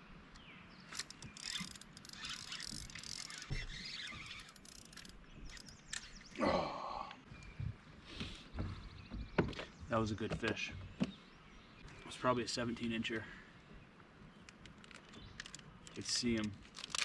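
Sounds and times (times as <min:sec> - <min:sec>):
fishing reel clicking: 0:00.9 - 0:06.0.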